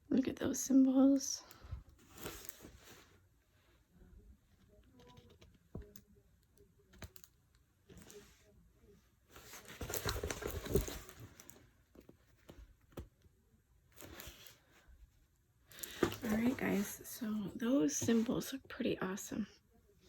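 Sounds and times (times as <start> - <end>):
canvas rustling and crinkling: 9.4 - 12.5, 15.8 - 17.2.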